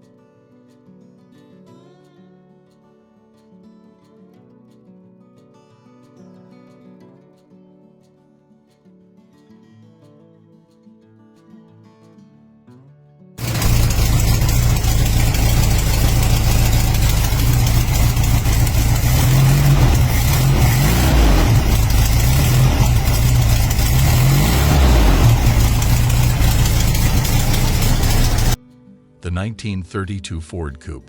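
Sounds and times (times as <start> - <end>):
car engine revving: 13.4 - 28.6.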